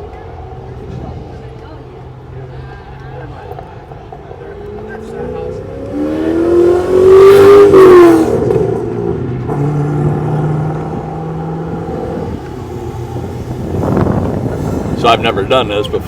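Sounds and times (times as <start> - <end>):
car accelerating past: 4.6 - 15.2.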